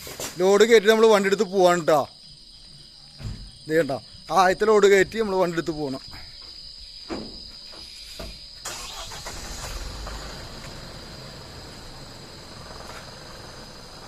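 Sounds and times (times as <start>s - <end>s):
crickets chirring: 0.0s - 14.0s
diesel truck engine starting: 8.6s - 14.0s.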